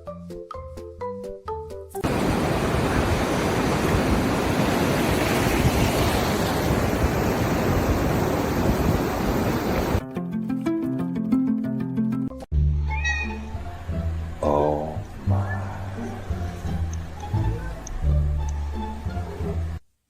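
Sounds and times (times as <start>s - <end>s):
music with clear notes: 0.0s - 2.0s, 10.0s - 14.4s, 15.0s - 19.8s
loud steady rushing noise: 2.0s - 10.0s.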